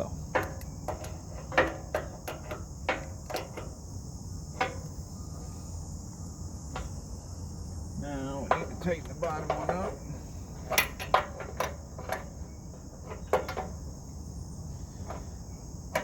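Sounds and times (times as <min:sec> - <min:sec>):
crickets chirping: 0:00.0 - 0:16.0
low steady rumble: 0:00.0 - 0:16.0
hand tools clicking on metal: 0:08.4 - 0:10.0, 0:10.7 - 0:12.3.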